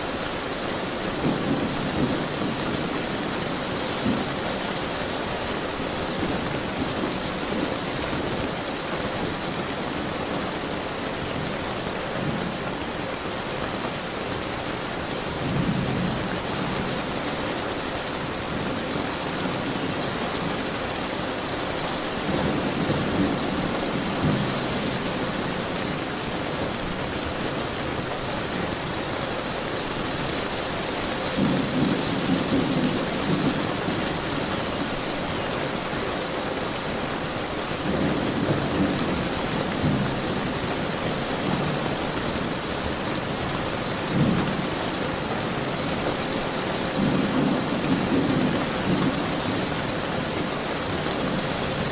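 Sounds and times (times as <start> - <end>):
heavy rain hissing: 0.0 - 51.9
thunder rumbling: 1.1 - 4.7.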